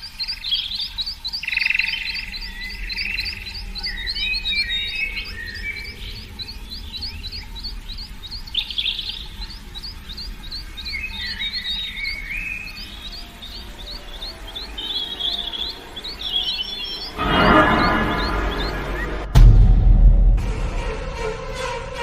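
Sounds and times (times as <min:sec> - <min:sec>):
birds warbling: 0:00.0 - 0:19.3
low rumble: 0:17.2 - 0:21.2.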